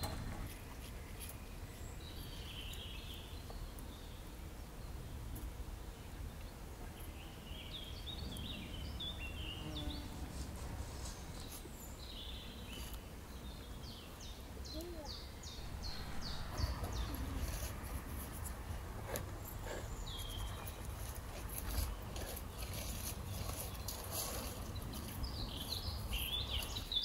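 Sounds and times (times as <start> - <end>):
songbirds chirping: 0.0 - 27.0
steady low rumble: 15.4 - 21.5.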